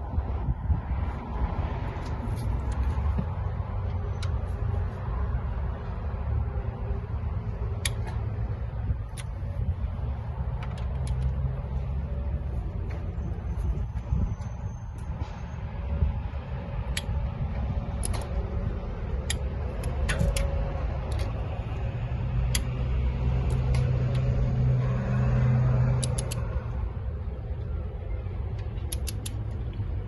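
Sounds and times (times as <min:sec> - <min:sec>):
low rumble: 0:00.0 - 0:30.0
torque wrench clicks: 0:18.0 - 0:18.4, 0:19.2 - 0:21.4, 0:26.0 - 0:26.5, 0:28.8 - 0:29.8.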